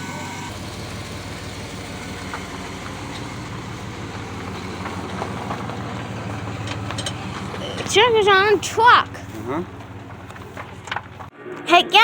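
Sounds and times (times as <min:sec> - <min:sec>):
motor vehicle engine running: 0:00.0 - 0:11.3.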